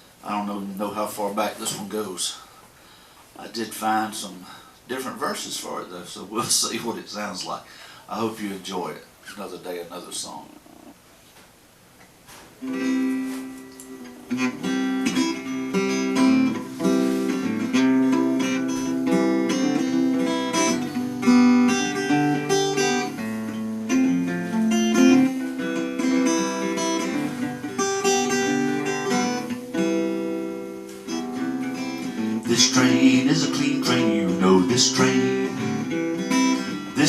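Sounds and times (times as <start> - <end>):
acoustic guitar strumming: 12.6 - 37.0.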